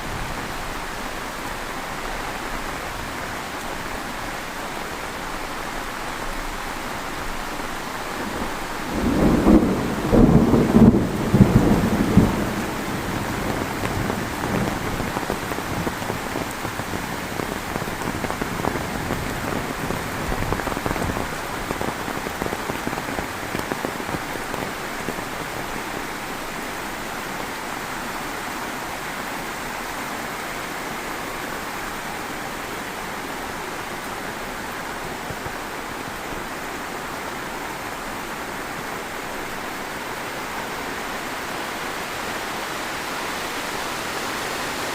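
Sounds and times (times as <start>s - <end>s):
heavy rain falling: 0.0s - 44.9s
thunder rumble: 7.4s - 25.6s.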